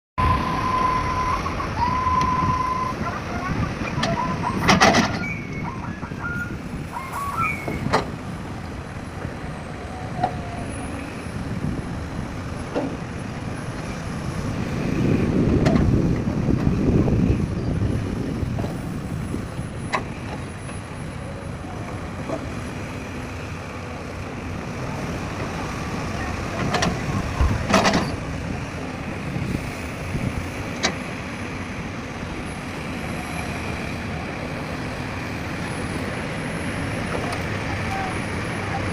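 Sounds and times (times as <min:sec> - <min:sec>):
heavy diesel machinery running: 0:00.2 - 0:38.9.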